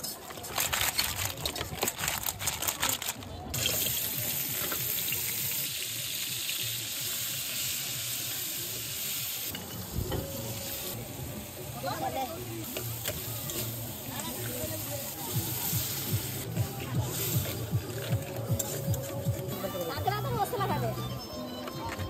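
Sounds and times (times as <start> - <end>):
crab frying in hot oil: 3.5 - 16.5.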